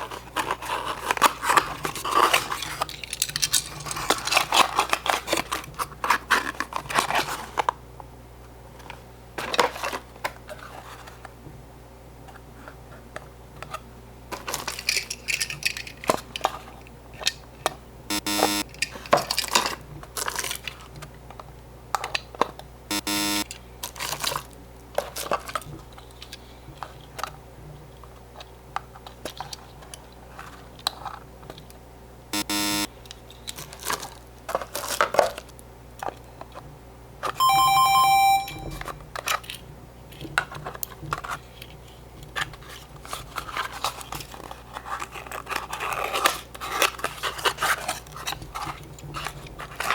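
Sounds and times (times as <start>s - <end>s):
toy cars clicking and rattling: 0.4s - 7.6s, 14.3s - 17.4s, 18.7s - 20.8s
buzzing electronic tones: 18.1s - 18.6s, 22.9s - 23.5s, 32.4s - 32.9s, 37.4s - 38.8s.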